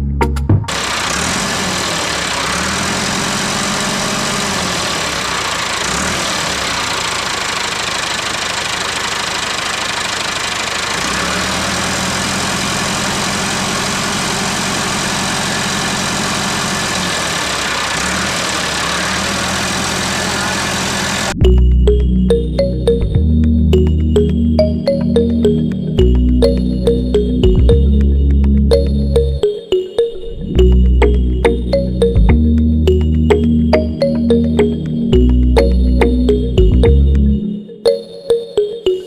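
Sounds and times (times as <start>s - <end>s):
small tractor engine running: 0.7s - 23.2s.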